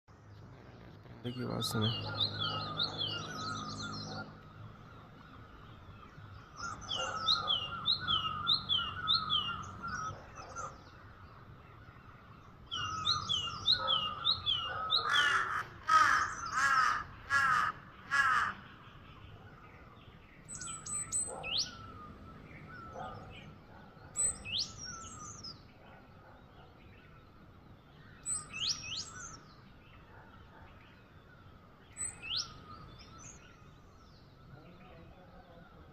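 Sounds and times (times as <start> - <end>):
harsh caw-like bird calls: 1.3 - 18.8.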